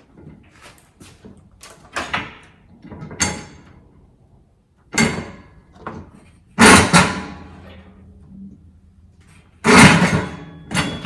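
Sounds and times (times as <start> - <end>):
clunks and scraping knocks: 9.2 - 11.0.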